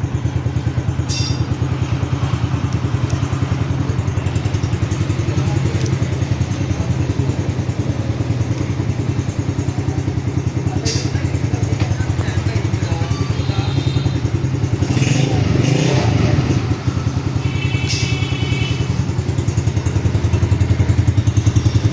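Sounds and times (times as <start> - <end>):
motorcycle engine idling: 0.0 - 21.9.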